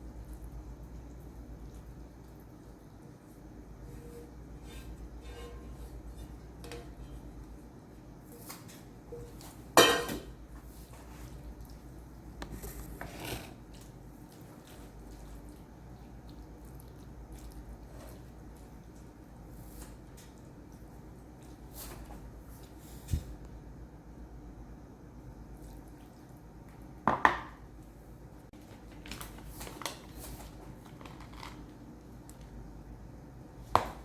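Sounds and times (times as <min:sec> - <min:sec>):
dishes and cookware clanking: 0:04.0 - 0:07.4, 0:09.1 - 0:10.4.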